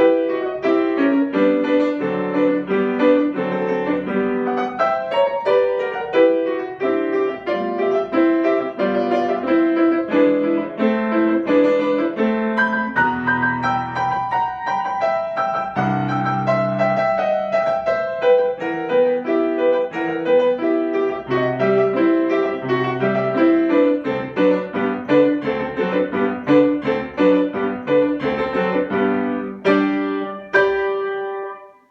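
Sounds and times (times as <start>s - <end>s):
solo piano piece: 0.0s - 31.9s.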